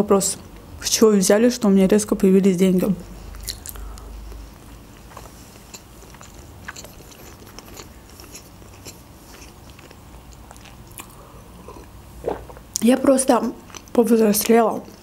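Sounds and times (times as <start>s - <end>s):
person chewing wet mouth clicks: 3.3s - 12.8s.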